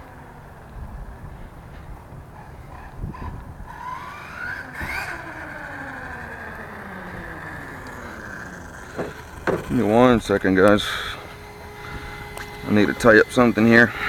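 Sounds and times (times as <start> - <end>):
electric motor whine: 3.7 - 14.0.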